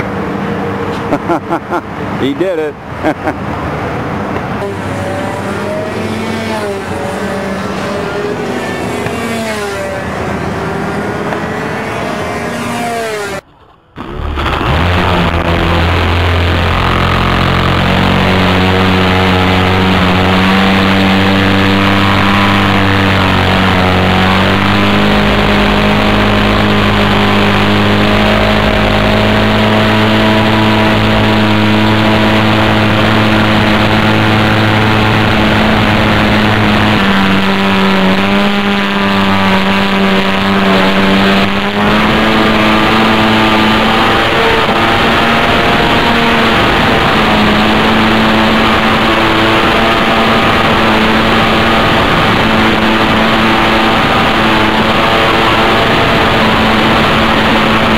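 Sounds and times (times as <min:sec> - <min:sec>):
model airplane engine droning: 0:14.8 - 0:57.9.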